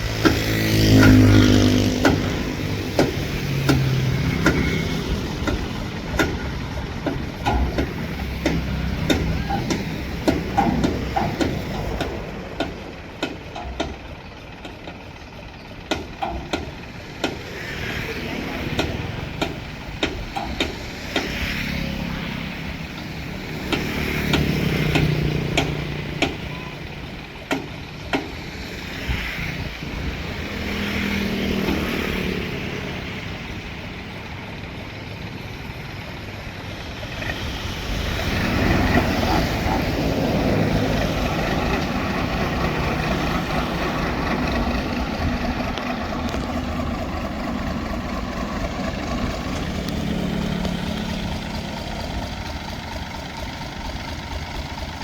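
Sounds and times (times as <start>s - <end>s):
boat engine running: 0.0s - 55.0s
sharp knocks: 0.1s - 14.1s.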